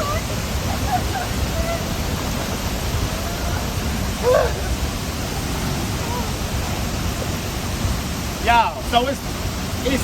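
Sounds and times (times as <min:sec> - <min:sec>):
waterfall roaring: 0:00.0 - 0:10.0
person crying out: 0:04.2 - 0:04.7.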